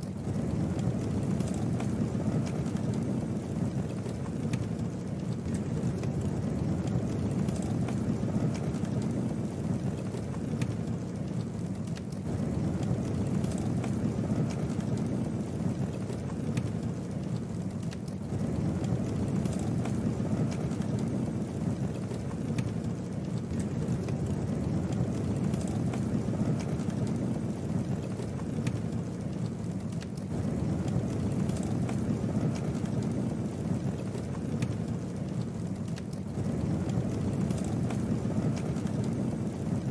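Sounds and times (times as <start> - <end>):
burning wood crackling and popping: 0.0 - 39.9
low noise of flames: 0.0 - 39.9.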